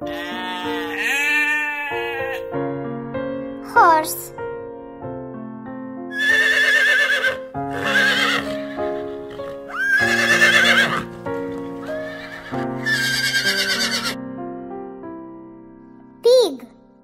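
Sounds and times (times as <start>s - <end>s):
keyboard background music: 0.0s - 17.0s
horse neighing: 0.1s - 2.4s, 6.1s - 11.1s, 11.8s - 14.2s.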